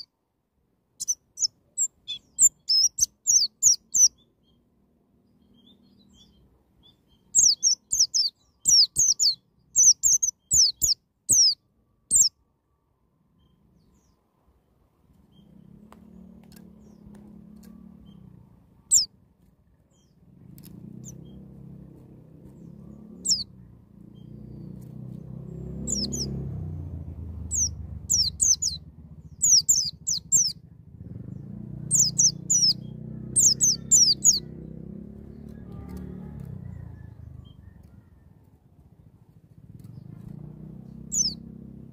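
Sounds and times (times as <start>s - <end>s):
low background rumble: 14.5s - 41.9s
bird calling in high sweeping notes: 31.9s - 34.6s.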